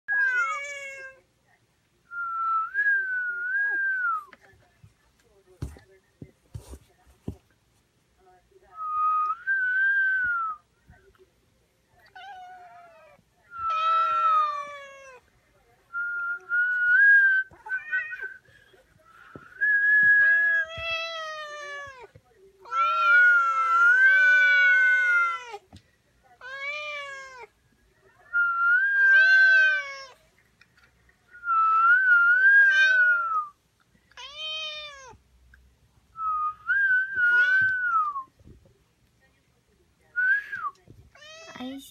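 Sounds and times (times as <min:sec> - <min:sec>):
cat meowing: 0:00.1 - 0:01.2, 0:12.1 - 0:15.2, 0:26.4 - 0:27.5, 0:29.0 - 0:30.2, 0:34.2 - 0:35.2, 0:41.1 - 0:41.6.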